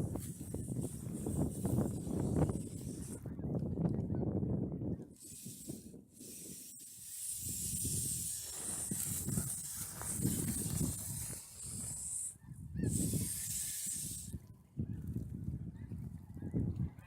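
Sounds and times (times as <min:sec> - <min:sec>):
wind buffeting microphone: 0:00.0 - 0:17.0
steady high-pitched hiss: 0:05.2 - 0:14.4.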